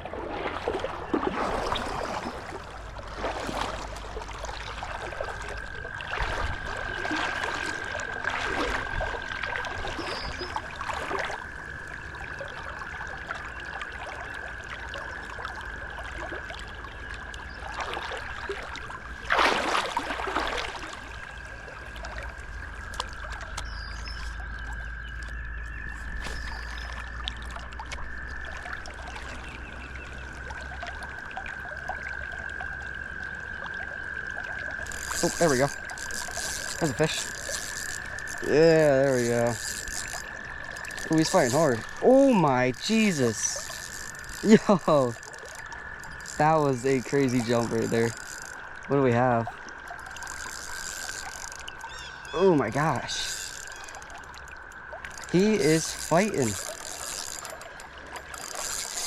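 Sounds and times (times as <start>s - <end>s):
creek water running: 0.0s - 59.0s
water splashing: 0.0s - 59.0s
frog trilling: 34.7s - 59.0s.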